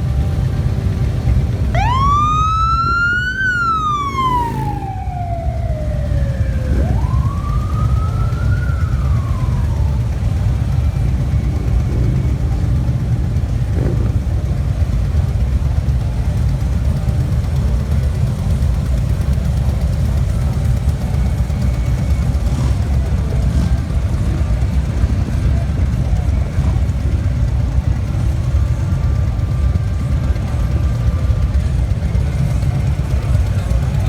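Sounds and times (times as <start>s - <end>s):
motorcycle engines rumbling: 0.0s - 34.0s
siren wailing: 1.7s - 12.9s.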